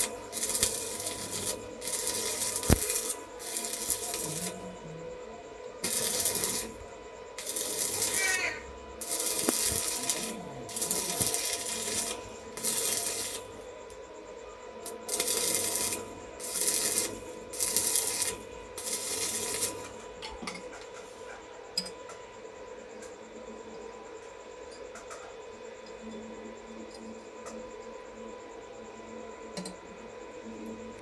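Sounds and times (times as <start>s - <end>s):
harsh hissing bursts: 0.0s - 5.0s, 5.8s - 6.8s, 7.4s - 13.6s.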